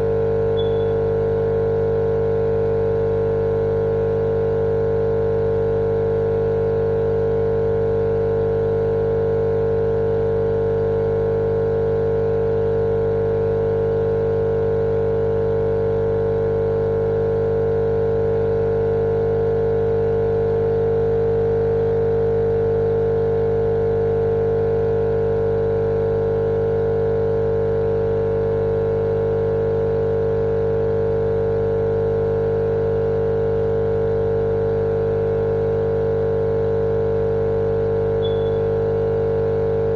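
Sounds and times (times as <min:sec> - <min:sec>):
steady machine-like hum: 0:00.0 - 0:01.4, 0:38.1 - 0:39.0.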